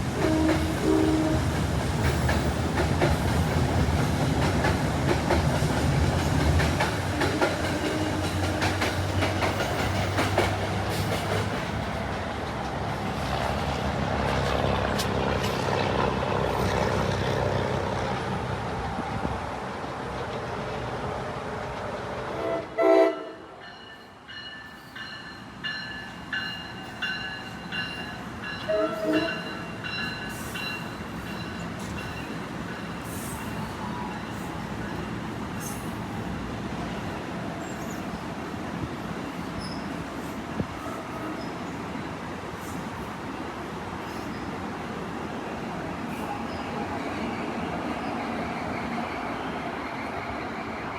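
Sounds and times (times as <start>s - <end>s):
wheels clickety-clack: 0.0s - 18.4s
train rumbling past: 0.0s - 50.9s
train horn blast: 0.2s - 1.6s, 7.1s - 9.1s, 22.3s - 23.6s, 28.6s - 29.6s.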